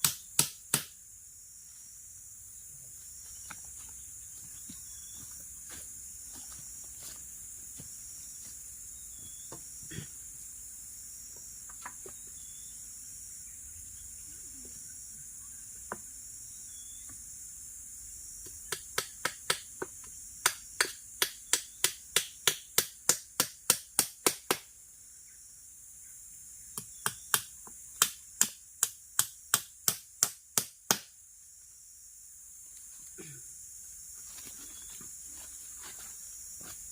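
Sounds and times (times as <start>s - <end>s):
insects droning: 0.0s - 36.9s
sharp evenly spaced clicks: 20.4s - 24.7s.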